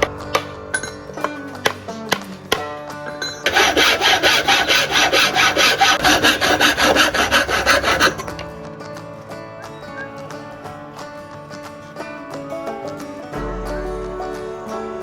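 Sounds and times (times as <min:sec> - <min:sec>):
background music: 0:00.0 - 0:15.0
hand tool rasping: 0:03.4 - 0:08.5.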